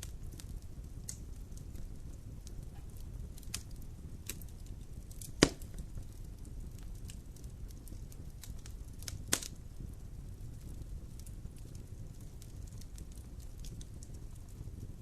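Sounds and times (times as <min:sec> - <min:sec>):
loud pop of fire: 0:00.0 - 0:09.9
fire crackling in fireplace: 0:00.0 - 0:15.0.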